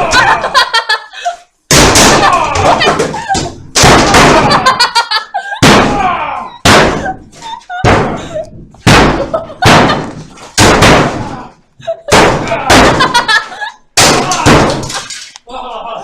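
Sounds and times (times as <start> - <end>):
angry shouting: 0.0 - 0.6, 2.0 - 3.4, 5.8 - 6.6, 12.4 - 13.2, 14.0 - 14.8.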